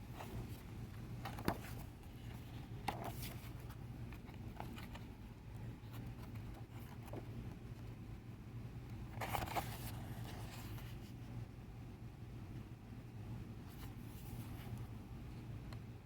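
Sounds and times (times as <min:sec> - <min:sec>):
low steady hum: 0:00.0 - 0:16.0
pages turning: 0:01.2 - 0:05.1, 0:09.1 - 0:11.1.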